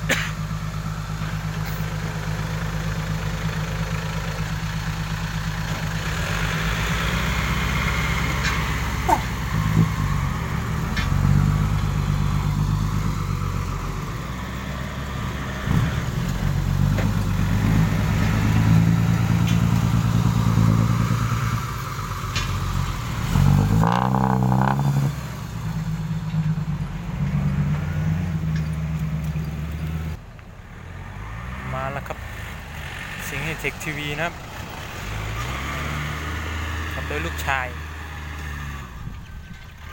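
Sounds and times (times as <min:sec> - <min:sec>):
dump truck engine running: 0:00.0 - 0:30.3.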